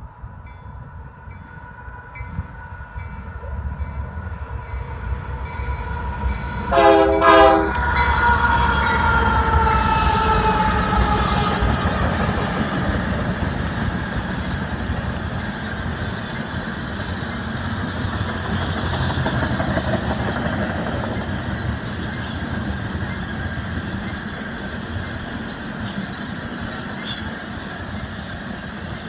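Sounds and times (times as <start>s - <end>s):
freight train wheels rumbling: 0.0s - 29.0s
locomotive horn: 6.6s - 11.8s.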